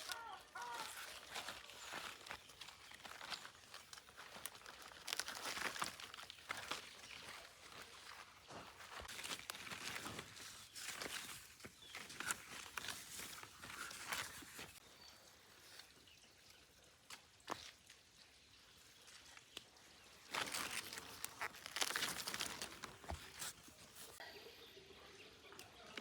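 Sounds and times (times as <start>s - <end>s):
leafy plants rustling: 0.0s - 14.8s, 18.6s - 24.2s.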